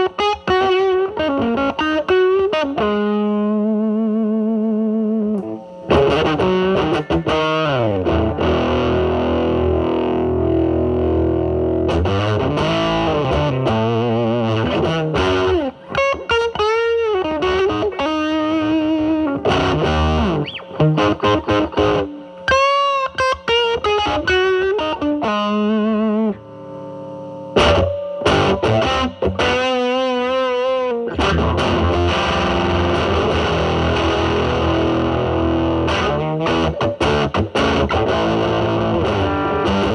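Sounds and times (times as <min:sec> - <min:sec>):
distorted electric guitar lead: 0:00.0 - 0:39.9.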